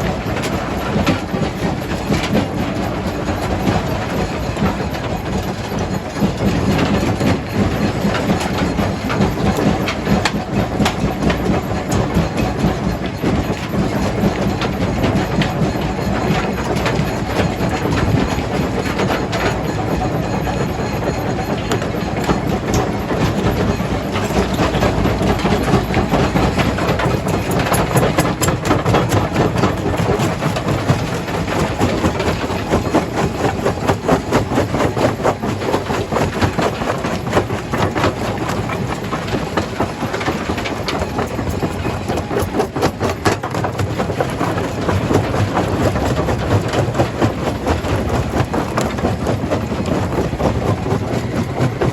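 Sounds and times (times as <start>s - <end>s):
stone crusher rumbling: 0.0s - 51.9s.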